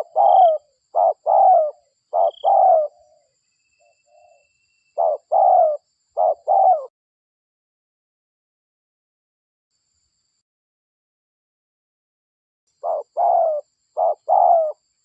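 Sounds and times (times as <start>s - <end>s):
dove cooing: 0.0s - 3.3s, 3.9s - 6.9s, 12.8s - 14.8s.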